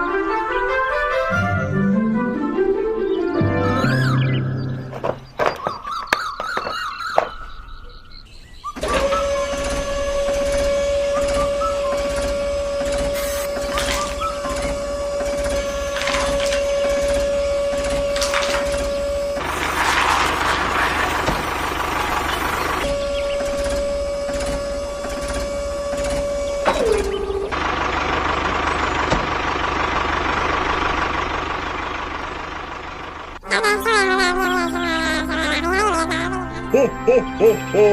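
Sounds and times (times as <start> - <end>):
small electric motor whining: 8.8 - 27.6
steady mechanical hiss: 9.1 - 19.7.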